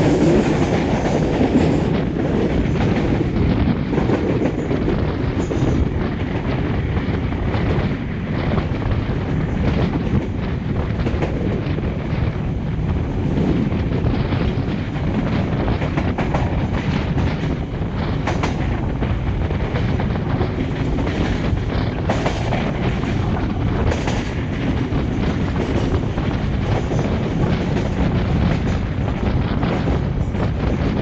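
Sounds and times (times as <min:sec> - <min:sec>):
rushing air: 0:00.0 - 0:31.0
train wheels rumbling on rail: 0:00.0 - 0:31.0
wheels clicking over rail joints: 0:13.2 - 0:31.0.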